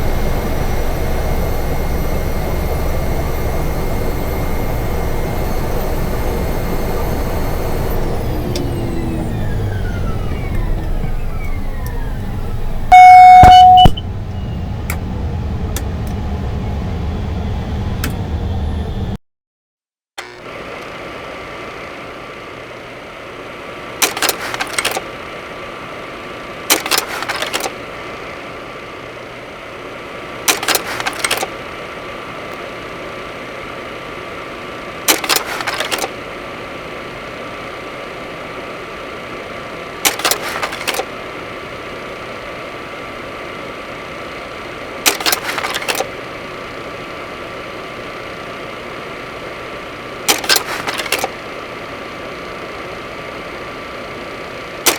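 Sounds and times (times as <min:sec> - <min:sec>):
turboprop engine drone: 0:00.0 - 0:19.2.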